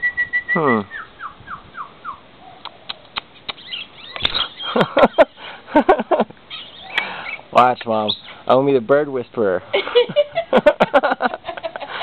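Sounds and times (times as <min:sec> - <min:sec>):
lovebird chirping: 0:00.0 - 0:05.3, 0:06.4 - 0:08.4.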